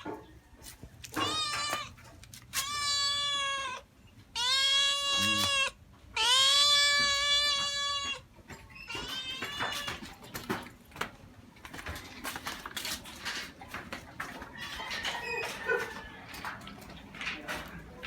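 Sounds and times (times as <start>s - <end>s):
cat meowing: 1.2s - 2.0s, 2.6s - 8.2s, 8.9s - 10.0s.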